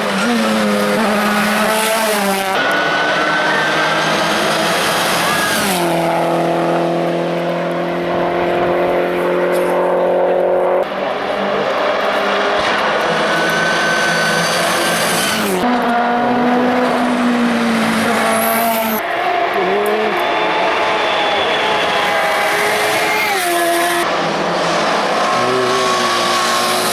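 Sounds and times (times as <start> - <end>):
race car engines running hard: 0.0 - 26.9.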